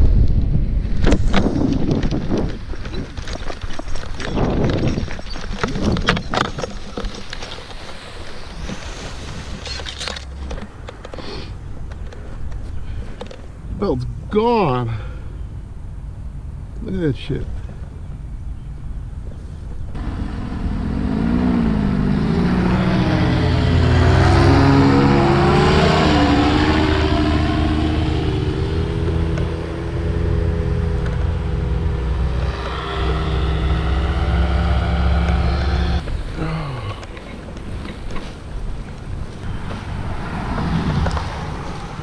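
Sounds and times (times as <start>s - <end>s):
paramotor engine running: 20.0s - 36.0s.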